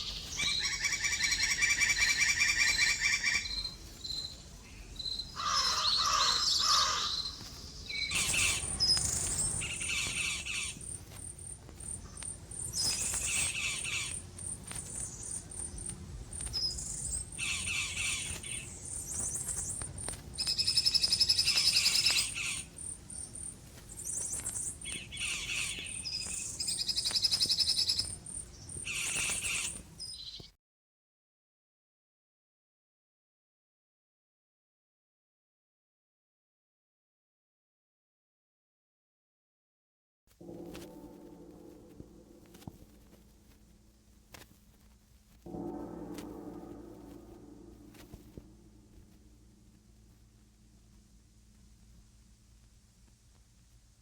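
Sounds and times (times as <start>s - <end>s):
birds trilling: 0.0s - 30.5s.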